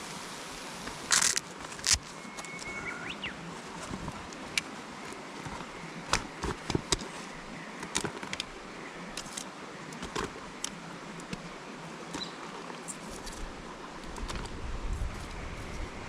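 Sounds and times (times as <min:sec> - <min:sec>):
steady background hiss: 0:00.0 - 0:16.0
camp gear clicking and knocking: 0:01.1 - 0:02.8, 0:03.8 - 0:07.2, 0:07.8 - 0:11.4.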